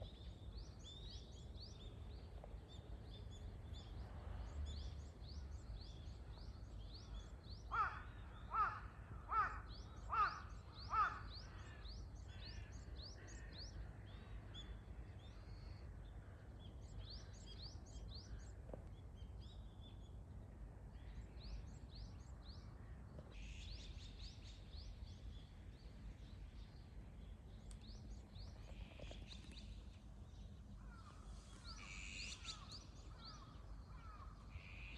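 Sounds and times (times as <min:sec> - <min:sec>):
wild birds chirping: 0:00.0 - 0:34.9
loud bird calls: 0:07.6 - 0:13.7, 0:30.8 - 0:34.9.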